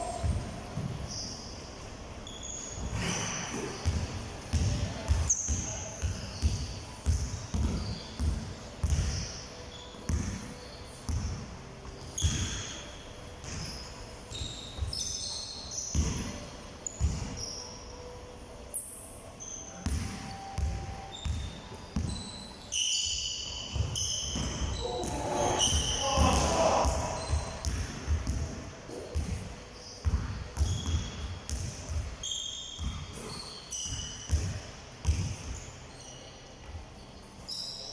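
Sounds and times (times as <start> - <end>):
shoe squeaks: 0.0 - 11.3, 11.9 - 27.7, 28.9 - 31.6, 32.2 - 37.9
basketballs bouncing on court: 0.1 - 1.3, 2.8 - 11.4, 12.2 - 12.8, 13.4 - 17.5, 19.8 - 22.3, 23.7 - 32.2, 32.8 - 35.6.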